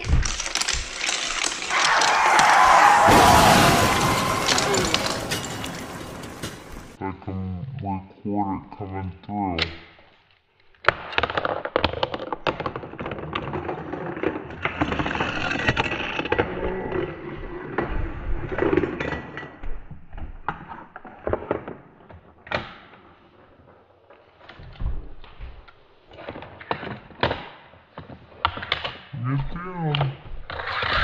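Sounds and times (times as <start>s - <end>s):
toy vehicles clattering down plastic track: 0.0s - 3.4s, 11.1s - 17.0s.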